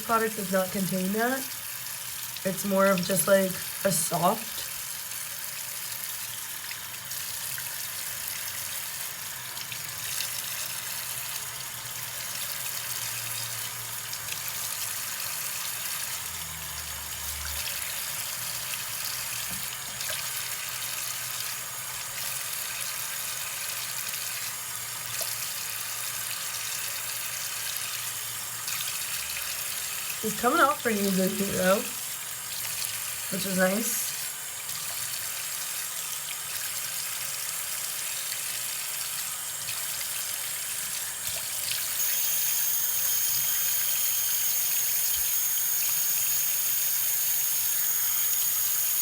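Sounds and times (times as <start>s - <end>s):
tap water running into sink: 0.0s - 49.0s
water splashing from face washing: 26.5s - 49.0s.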